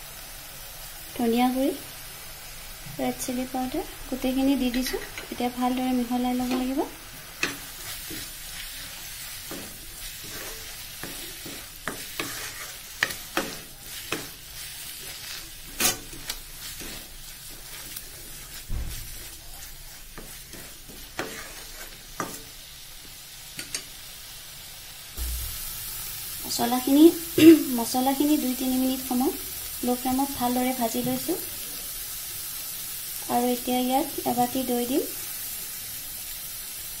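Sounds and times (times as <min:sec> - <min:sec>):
spices sizzling in oil: 0:00.0 - 0:37.0
spatula scraping and knocking pan: 0:04.6 - 0:22.7.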